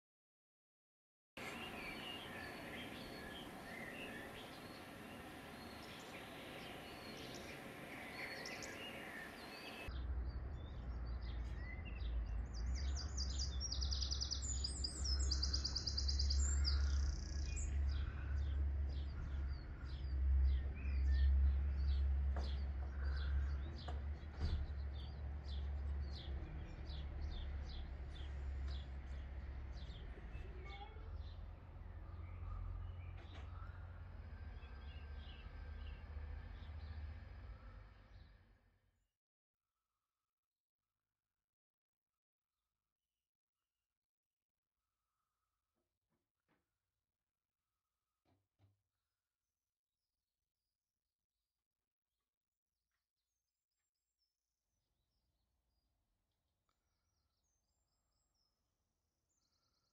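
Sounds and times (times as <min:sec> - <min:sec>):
small birds chirping: 0:01.4 - 0:38.4.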